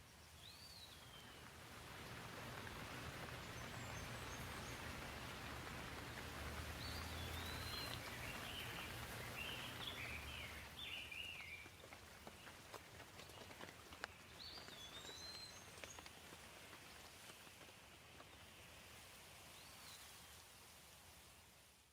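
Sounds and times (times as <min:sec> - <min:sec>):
gentle rain falling: 0:00.0 - 0:21.9
sharp water drips: 0:00.9 - 0:20.5
bird chirping: 0:06.8 - 0:11.8, 0:14.0 - 0:16.1.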